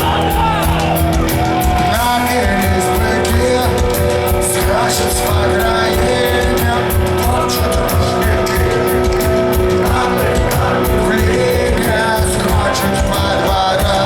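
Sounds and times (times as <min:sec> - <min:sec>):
drum beat: 0:00.0 - 0:14.0
guitars: 0:00.0 - 0:14.0
rock band playing live: 0:00.0 - 0:14.0.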